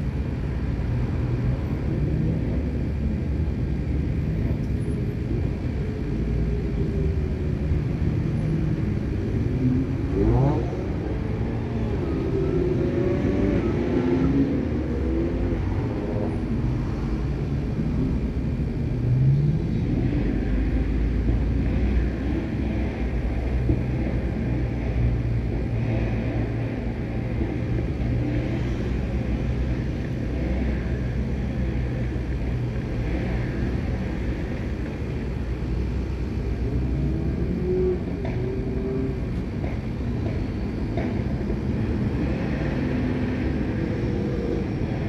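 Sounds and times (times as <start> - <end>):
cars driving past: 7.3 - 45.0.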